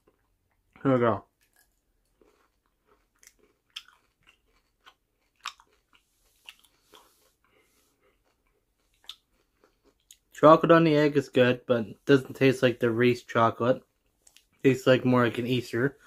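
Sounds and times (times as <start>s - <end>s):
chewing candy: 0.0s - 10.4s
soft crunches: 1.4s - 10.3s.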